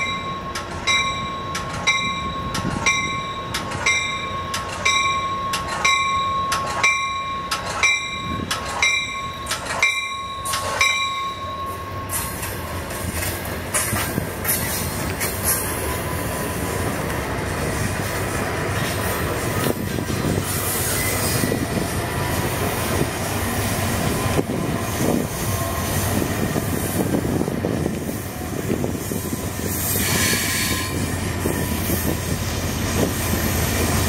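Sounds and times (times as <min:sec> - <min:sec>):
train bell ringing: 0:00.0 - 0:12.7
train cars rumbling: 0:00.0 - 0:34.0.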